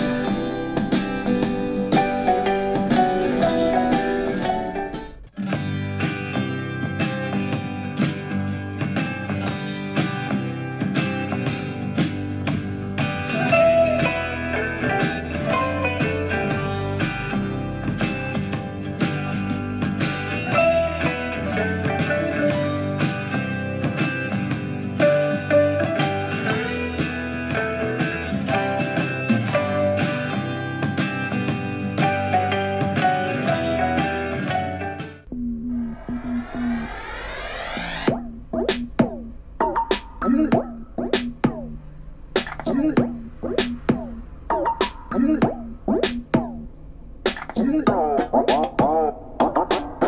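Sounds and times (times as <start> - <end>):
country guitar music on speaker: 0.0 - 35.3.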